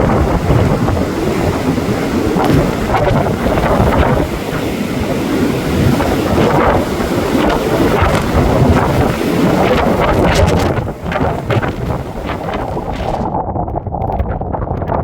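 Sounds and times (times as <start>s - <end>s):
blizzard wind buffeting microphone: 0.0s - 15.0s.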